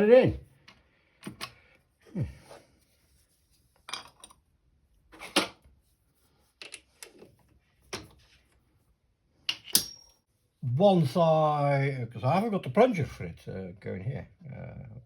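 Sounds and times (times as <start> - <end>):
tools and metal parts clattering: 3.8 - 4.4, 9.5 - 10.2.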